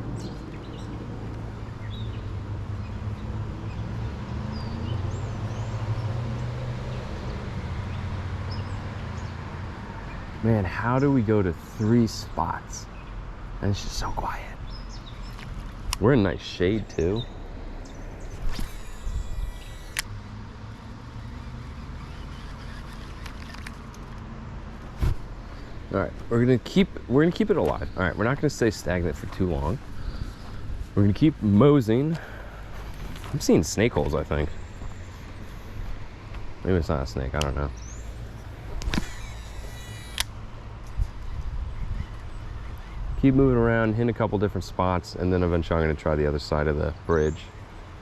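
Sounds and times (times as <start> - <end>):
small birds chirping: 0.0 - 44.0
steady low hum: 16.6 - 23.6.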